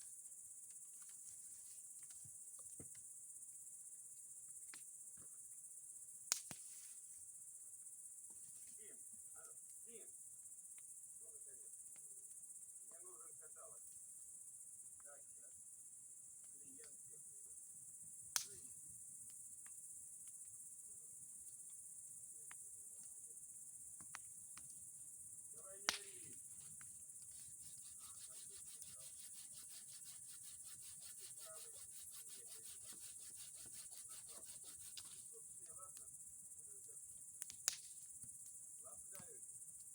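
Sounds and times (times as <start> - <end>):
crickets chirring: 0.0 - 39.9
sharp snaps: 6.3 - 6.7, 18.3 - 18.7, 25.7 - 28.8, 37.4 - 38.0.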